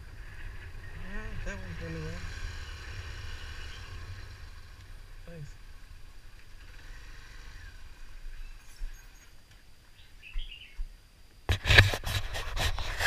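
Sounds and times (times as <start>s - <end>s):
faint birds chirping: 0.0s - 11.4s
low hum: 0.0s - 13.0s
crackling scraping rustle: 11.5s - 13.0s.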